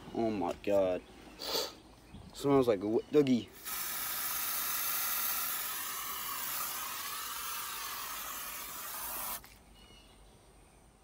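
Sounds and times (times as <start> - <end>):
aerosol spray hissing: 3.6 - 9.5.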